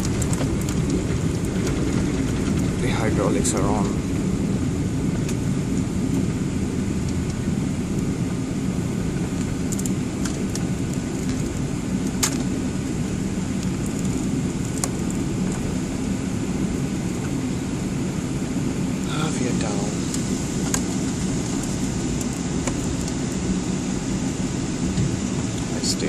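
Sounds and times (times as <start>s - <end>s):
faint clicks and rattles: 0.0s - 4.0s
airliner cabin rumble: 0.0s - 26.0s.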